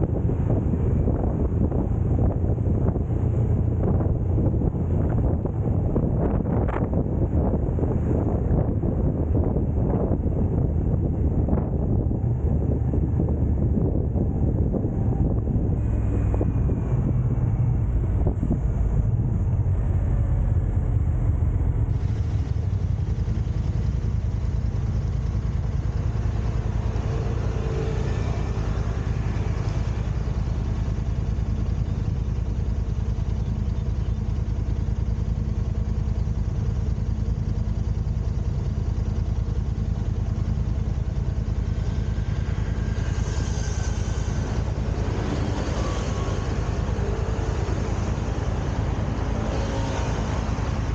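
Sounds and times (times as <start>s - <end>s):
car engine rumble: 0.0s - 50.9s
tyre road noise: 0.0s - 50.9s.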